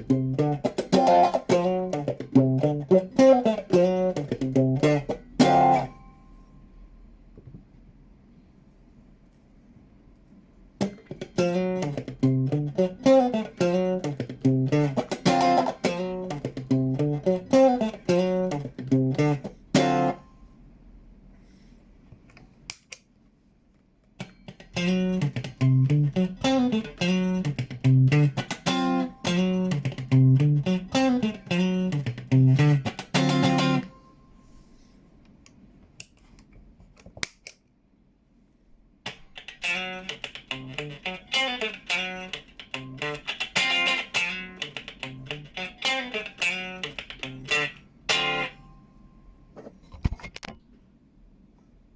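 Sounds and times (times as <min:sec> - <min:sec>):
electric guitar riff with filter: 0:00.0 - 0:06.2, 0:10.8 - 0:20.3, 0:24.2 - 0:34.1, 0:39.1 - 0:48.9.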